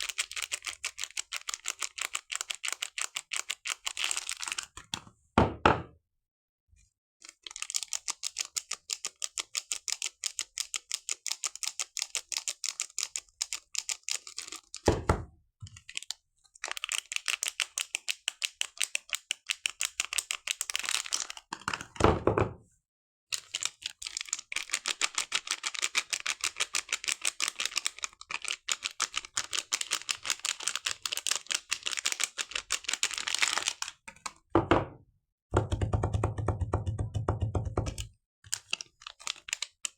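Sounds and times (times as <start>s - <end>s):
packaging clicking and crinkling: 0.0s - 4.8s, 7.2s - 14.9s, 15.7s - 21.9s, 23.4s - 34.4s, 38.5s - 39.9s.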